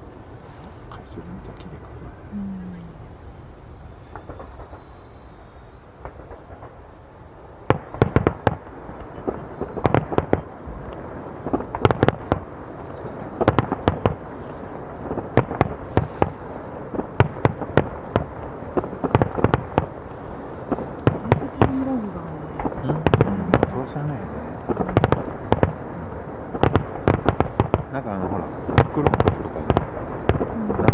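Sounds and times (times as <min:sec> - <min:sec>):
firework shells bursting: 0:07.7 - 0:22.0, 0:24.6 - 0:30.9.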